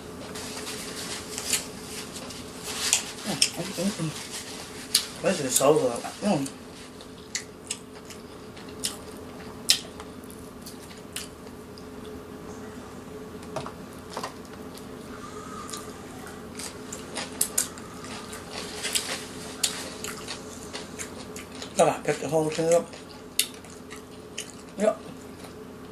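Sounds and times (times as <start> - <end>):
faint steady hum: 0.0 - 25.9
wet chewing and mouth smacks: 7.0 - 12.2, 16.5 - 21.8, 22.5 - 24.8.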